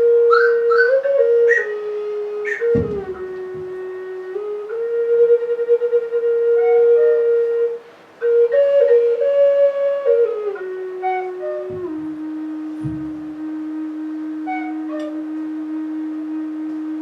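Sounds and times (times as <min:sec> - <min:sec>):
slow ambient melody: 0:00.0 - 0:17.0
soft low thuds: 0:02.4 - 0:04.3, 0:11.4 - 0:13.7.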